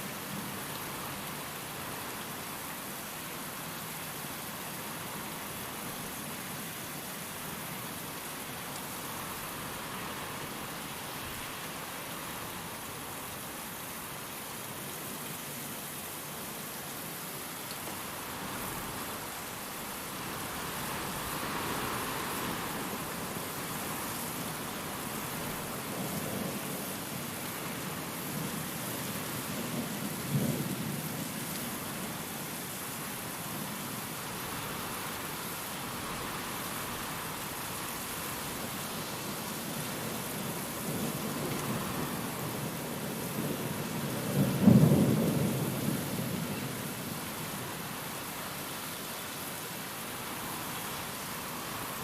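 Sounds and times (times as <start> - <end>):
steady rain: 0.0 - 52.0
wind: 0.0 - 52.0
low rumble of thunder: 29.2 - 32.1, 40.4 - 47.5.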